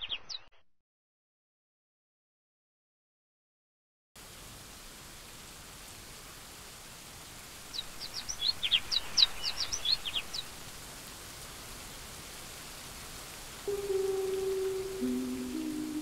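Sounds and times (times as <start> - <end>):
bird chirps: 0.0 - 0.6
rain hissing: 4.2 - 16.0.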